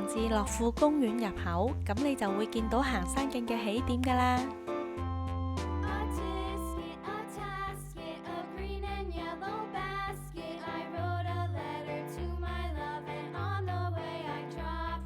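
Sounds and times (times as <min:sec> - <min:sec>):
upbeat instrumental music: 0:00.0 - 0:08.2.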